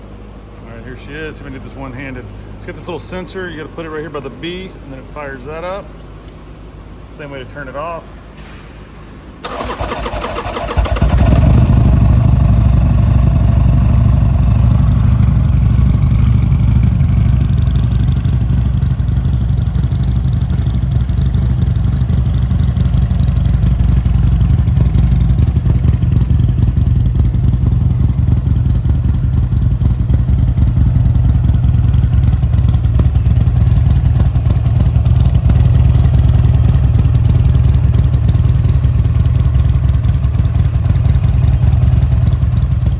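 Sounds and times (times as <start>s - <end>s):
electric starter whining: 9.4s - 12.1s
motorcycle engine idling: 9.5s - 42.9s.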